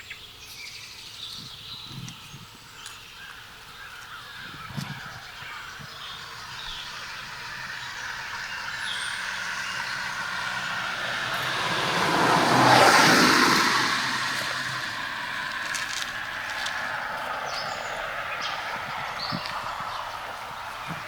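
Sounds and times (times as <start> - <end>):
vehicle driving past: 6.0 - 21.0.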